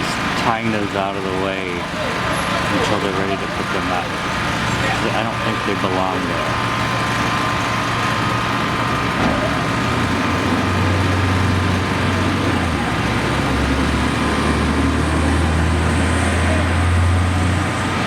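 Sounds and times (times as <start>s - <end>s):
engines rumbling: 0.0s - 18.0s
street noise: 0.0s - 18.0s.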